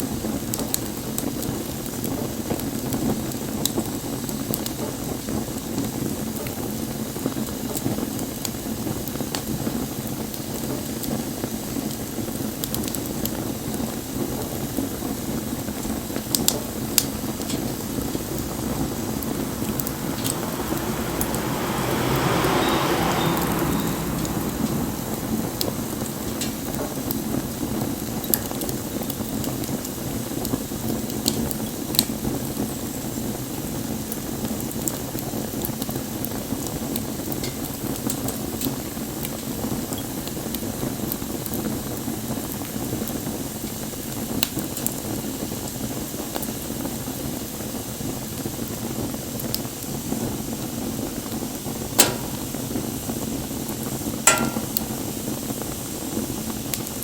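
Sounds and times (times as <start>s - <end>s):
wood fire crackling: 0.4s - 45.4s, 50.6s - 57.0s
burning wood popping: 15.2s - 22.1s, 24.2s - 32.2s, 52.0s - 52.9s, 54.0s - 55.2s.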